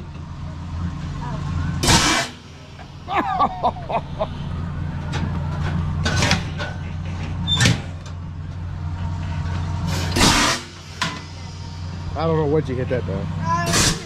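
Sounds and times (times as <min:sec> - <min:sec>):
low engine hum: 0:00.0 - 0:13.6
compressed air cannon blasts: 0:01.8 - 0:02.4, 0:09.9 - 0:11.4, 0:13.7 - 0:14.0.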